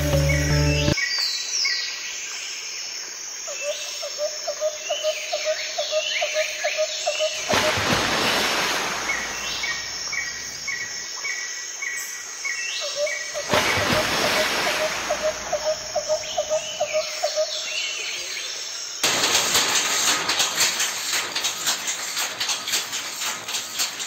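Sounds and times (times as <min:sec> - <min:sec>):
music track: 0:00.0 - 0:01.0
birds chirping and calling: 0:12.8 - 0:18.5.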